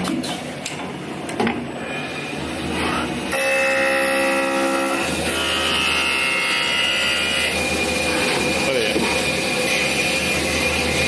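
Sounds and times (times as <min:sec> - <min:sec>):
wood lathe cutting with high whine: 0:03.2 - 0:11.0.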